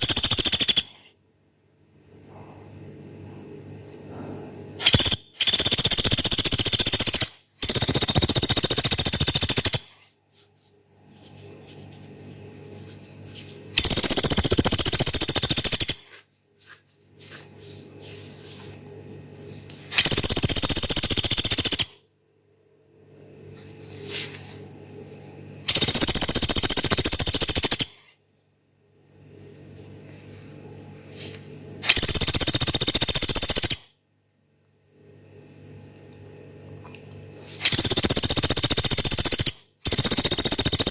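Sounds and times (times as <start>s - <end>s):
woodpecker rattling trills: 0.0s - 1.0s, 4.8s - 10.0s, 13.8s - 16.1s, 20.0s - 22.0s, 25.7s - 28.0s, 31.9s - 33.9s, 37.6s - 40.9s
faint low hum: 0.0s - 40.9s.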